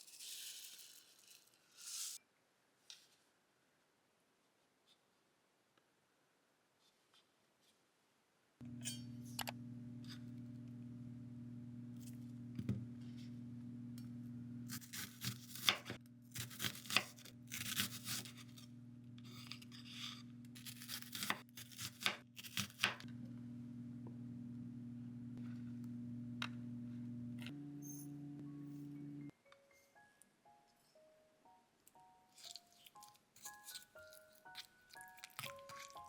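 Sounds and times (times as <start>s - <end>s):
low hum: 8.6s - 21.3s, 23.0s - 29.3s.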